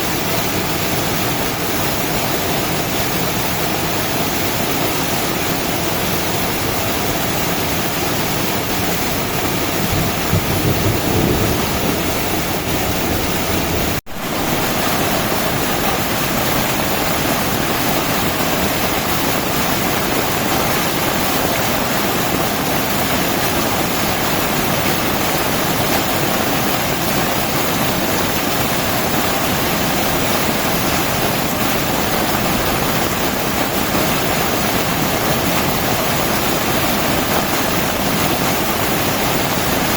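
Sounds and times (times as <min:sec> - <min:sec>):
heavy rain pouring: 0:00.0 - 0:39.9
low thunder rumble: 0:09.5 - 0:21.0.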